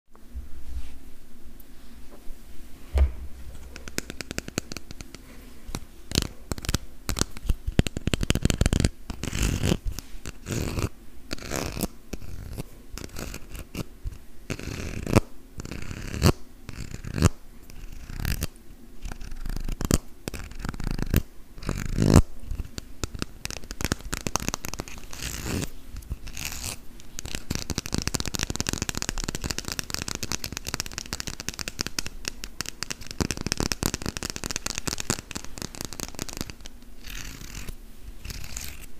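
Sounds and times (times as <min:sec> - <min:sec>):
fingernails scratching plastic: 0:06.1 - 0:38.9.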